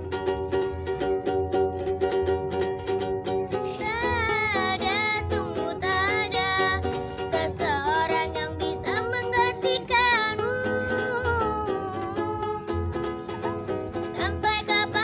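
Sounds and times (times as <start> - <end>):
low beat: 0.0 - 7.4
strummed ukulele: 0.0 - 15.0
child singing: 3.6 - 12.7, 14.0 - 15.0.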